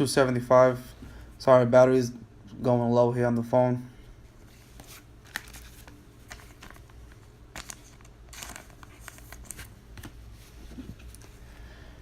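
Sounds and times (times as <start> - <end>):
trading cards shuffled by hand: 4.4 - 11.4.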